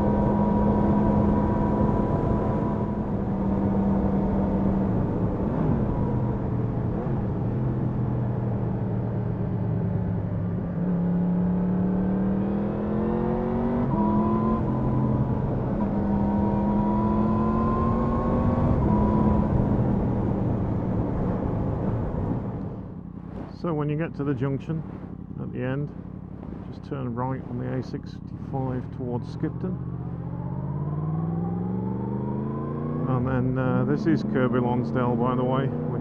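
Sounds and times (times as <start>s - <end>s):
motorcycle engine revving: 0.0s - 36.0s
wind rushing over microphone: 14.6s - 28.8s.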